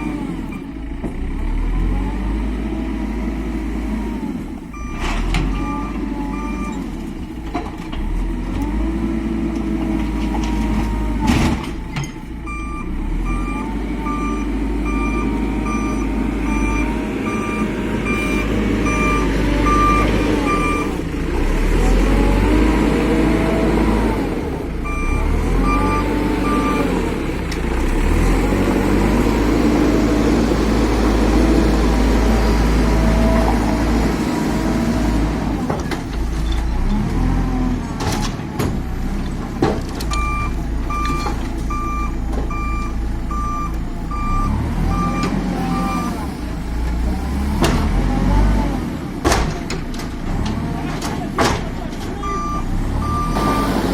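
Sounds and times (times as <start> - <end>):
diesel engine revving: 0.0 - 53.9
reversing alarm beeping: 4.7 - 6.8, 12.4 - 21.0, 24.8 - 27.3, 40.1 - 46.3, 52.2 - 53.9.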